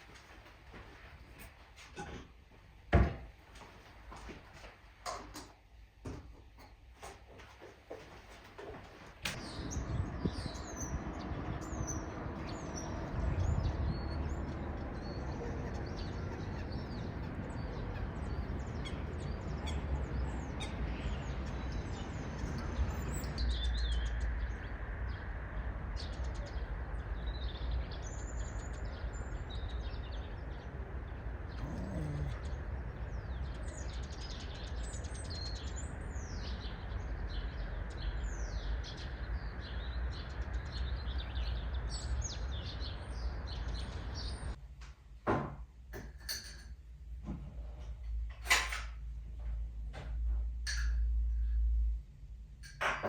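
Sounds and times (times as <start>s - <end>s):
small birds chirping: 9.3s - 44.6s.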